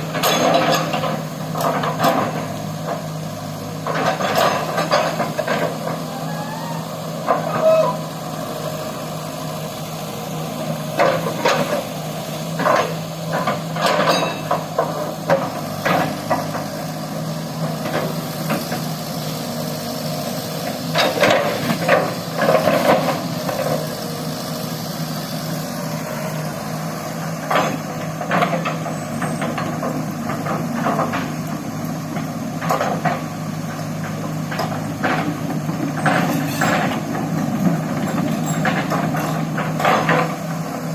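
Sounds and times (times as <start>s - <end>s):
excavator diesel engine running: 0.0s - 40.9s
metallic clanks and knocks: 12.6s - 16.6s.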